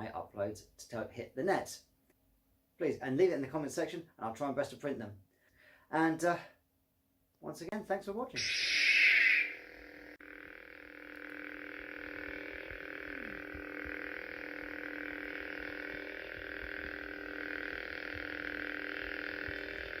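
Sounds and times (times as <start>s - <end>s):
electronic drone music: 8.4s - 20.0s.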